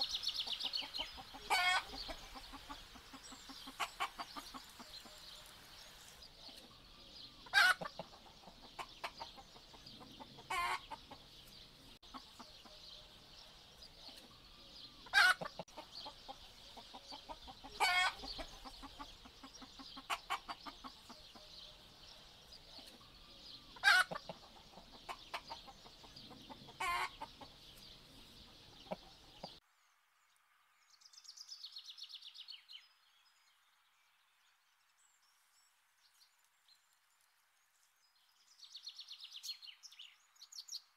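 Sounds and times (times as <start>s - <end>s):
hens clucking: 0.0s - 5.6s, 7.4s - 12.8s, 15.0s - 21.6s, 22.7s - 29.6s.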